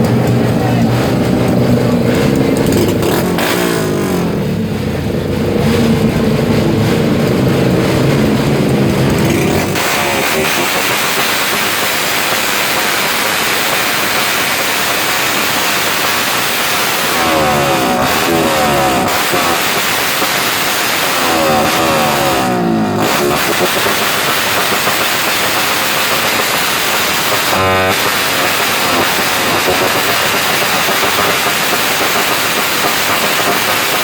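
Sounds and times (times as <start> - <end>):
crowd voices: 0.0 - 23.8
din of engines: 0.0 - 34.0
vehicle engine revving: 0.0 - 34.0.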